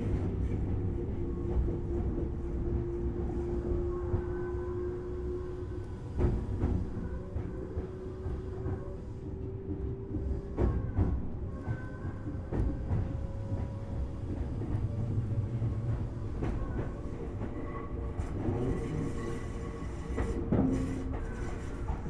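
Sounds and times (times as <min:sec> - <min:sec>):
electric train running: 0:11.6 - 0:22.0.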